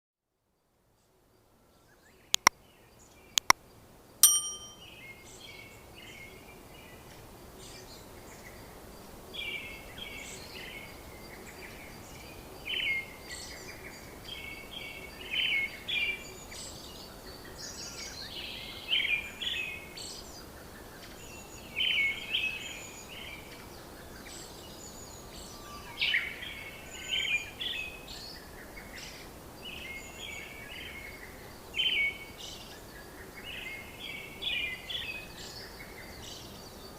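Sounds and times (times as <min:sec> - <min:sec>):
songbirds singing: 0:09.4 - 0:36.9.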